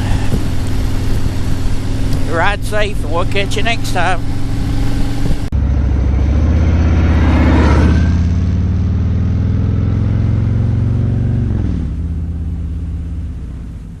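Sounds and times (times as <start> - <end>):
rush of noise: 0.0 - 9.2
motorcycle engine running: 0.0 - 14.0.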